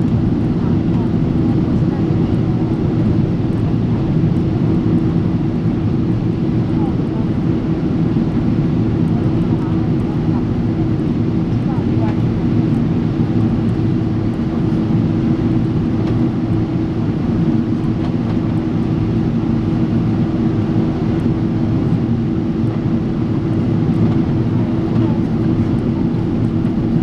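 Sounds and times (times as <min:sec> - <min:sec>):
airliner cabin engine and air noise: 0:00.0 - 0:27.0
constant low hum: 0:00.0 - 0:27.0.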